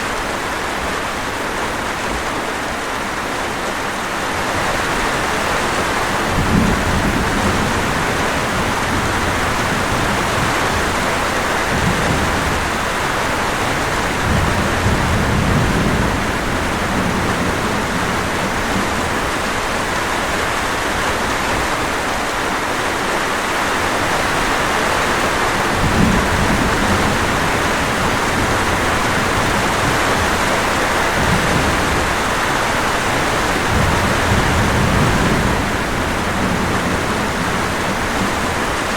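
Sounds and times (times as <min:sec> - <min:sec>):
heavy rain falling: 0:00.0 - 0:38.9
low rumbles: 0:25.8 - 0:38.9.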